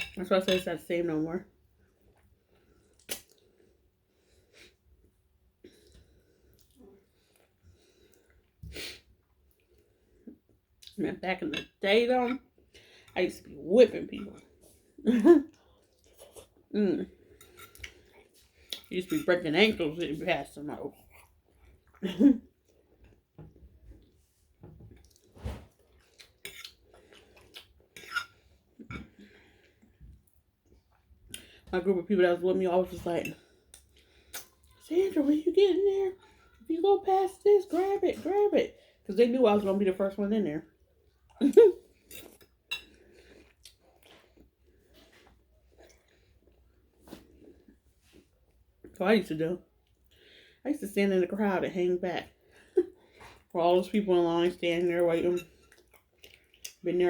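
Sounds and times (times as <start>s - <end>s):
person chewing food: 1.8s - 8.6s, 15.5s - 18.9s, 20.9s - 31.6s, 33.5s - 34.8s, 40.8s - 49.0s, 55.4s - 56.8s.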